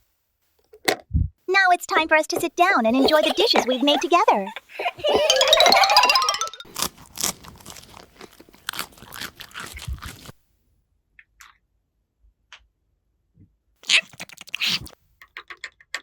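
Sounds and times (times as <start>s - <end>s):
crunchy chewing: 6.8s - 10.4s.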